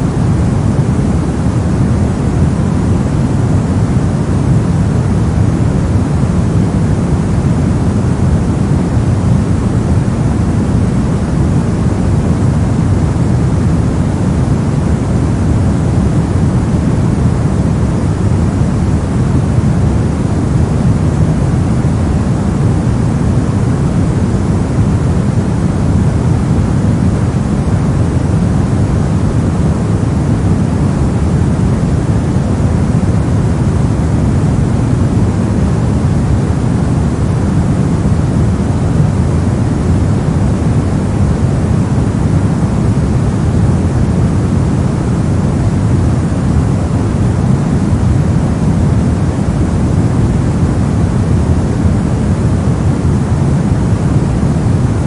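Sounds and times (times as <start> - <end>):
deep steady noise: 0.0 - 55.0.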